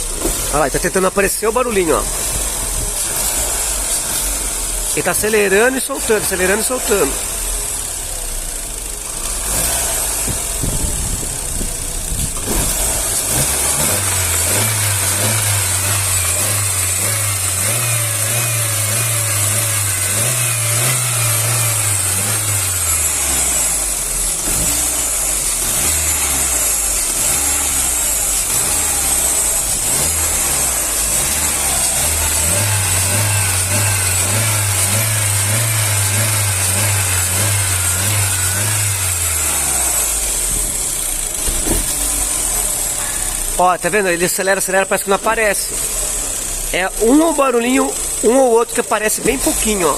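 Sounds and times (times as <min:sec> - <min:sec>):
car engine revving: 0:00.0 - 0:49.9.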